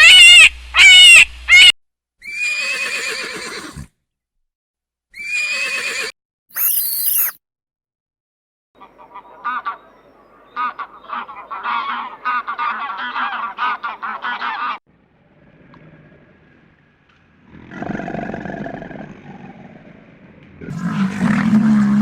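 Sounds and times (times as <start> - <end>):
geese honking: 10.6 - 14.8.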